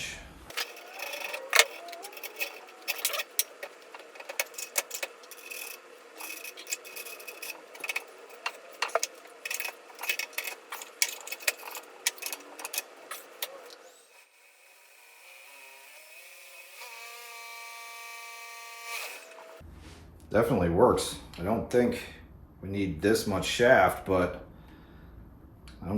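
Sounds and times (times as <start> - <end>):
wrench clicking on steel parts: 0.5 - 13.5.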